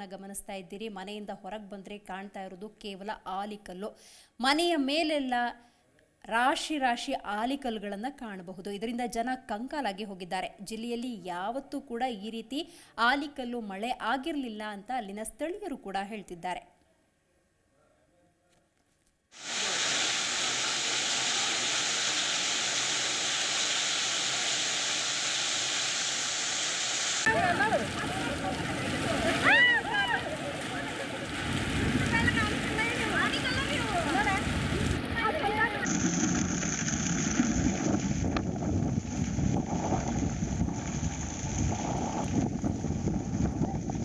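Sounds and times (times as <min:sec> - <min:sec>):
hail and rain pelting down: 0:27.2 - 0:36.6
wind buffeting microphone: 0:27.3 - 0:35.9, 0:37.5 - 0:44.0.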